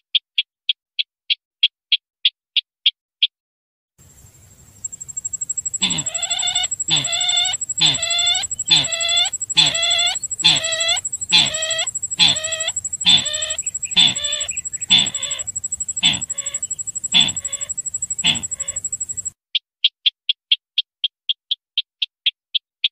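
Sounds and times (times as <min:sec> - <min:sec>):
fast ticks: 0:04.8 - 0:19.3
harsh bird lure calls: 0:04.8 - 0:19.3
thin high whine: 0:04.8 - 0:19.3.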